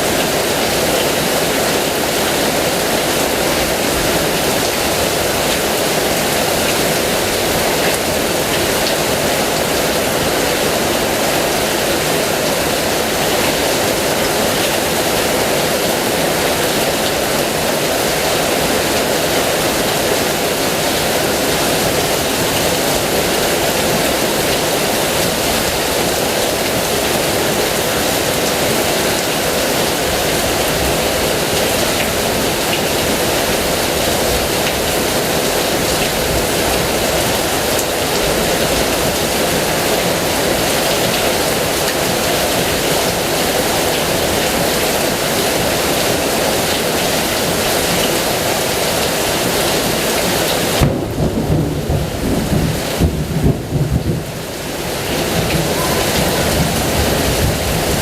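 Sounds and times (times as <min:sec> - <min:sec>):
heavy rain: 0:00.0 - 0:58.0
rumble of thunder: 0:50.8 - 0:54.5.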